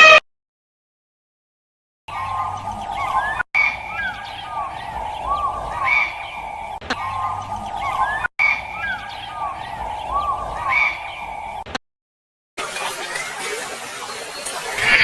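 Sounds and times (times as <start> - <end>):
birds chattering: 2.1 - 11.6
birds chirping in chorus: 2.1 - 11.6.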